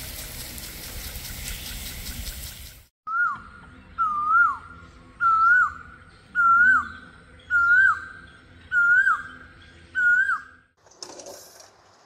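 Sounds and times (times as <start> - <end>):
bird whistling call: 3.1 - 10.6.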